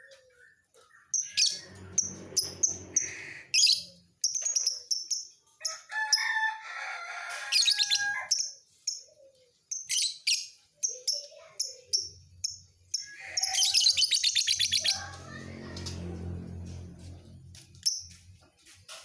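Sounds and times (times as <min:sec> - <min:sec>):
bird chirping and twittering: 0:00.1 - 0:05.4, 0:07.6 - 0:16.0.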